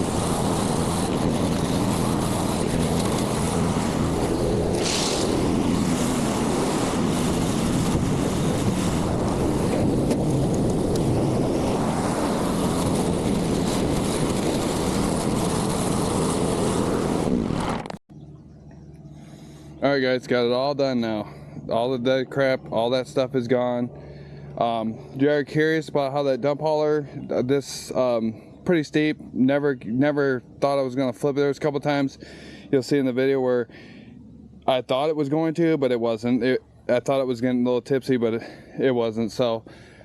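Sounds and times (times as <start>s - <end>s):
construction machine engine running: 0.0s - 26.1s.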